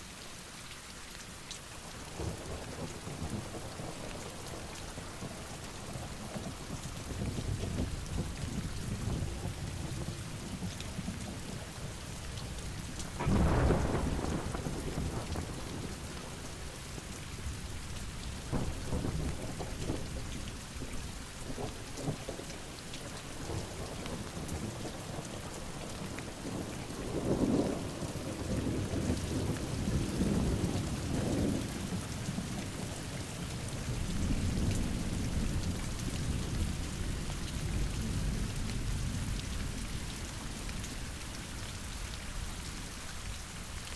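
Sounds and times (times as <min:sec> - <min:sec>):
heavy rain pouring: 0:00.0 - 0:43.9
thunder rumbling: 0:13.0 - 0:17.7.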